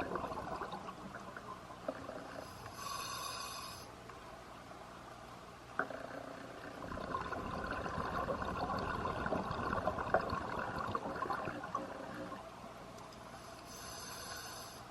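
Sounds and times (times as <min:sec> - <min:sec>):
underwater bubbles from regulator: 0:00.0 - 0:02.4, 0:05.8 - 0:12.4.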